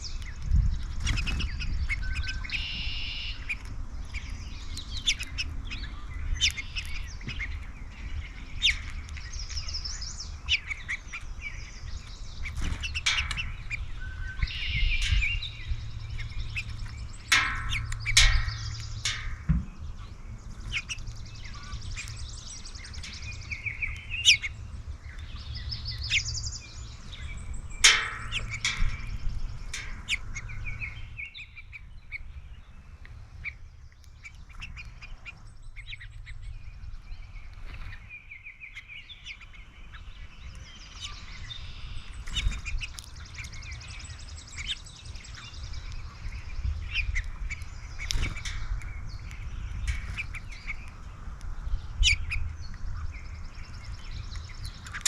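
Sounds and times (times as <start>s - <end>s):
low rumble: 0.0s - 38.1s
songbirds chirping and trilling: 0.0s - 55.0s.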